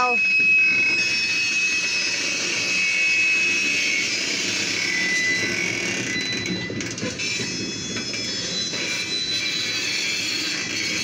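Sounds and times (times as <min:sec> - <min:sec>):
faint high whining tones: 0:00.0 - 0:11.0.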